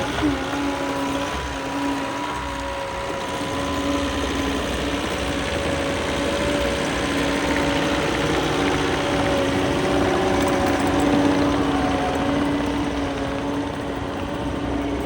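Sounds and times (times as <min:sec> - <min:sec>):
diesel engine drone: 0:00.0 - 0:15.0.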